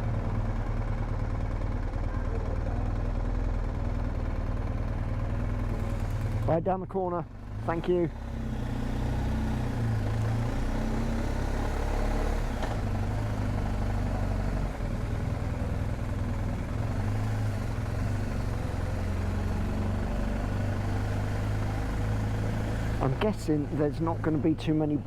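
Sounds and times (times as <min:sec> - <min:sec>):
motorcycle engine idling low: 0:00.0 - 0:07.4.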